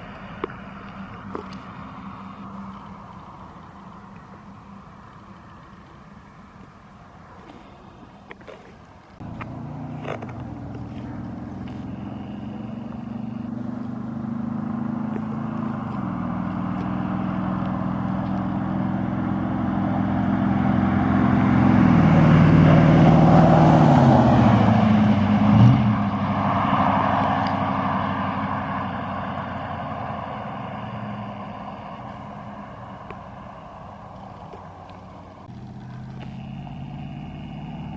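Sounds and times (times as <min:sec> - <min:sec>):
pickup truck driving past: 0:00.0 - 0:37.9.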